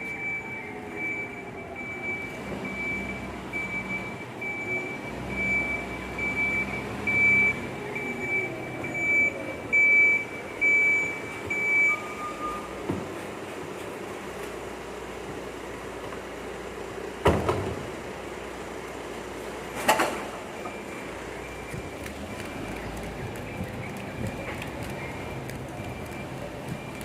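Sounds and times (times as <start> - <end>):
truck back-up alarm beeping: 0.0 - 12.9, 20.1 - 27.0
diesel engine running: 0.0 - 27.0.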